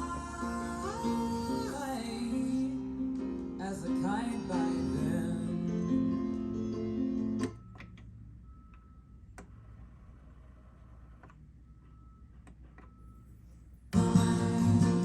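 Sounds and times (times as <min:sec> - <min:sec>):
guitar music from a record: 0:00.0 - 0:07.5, 0:14.0 - 0:15.0
faint high mechanical whine: 0:05.1 - 0:14.0.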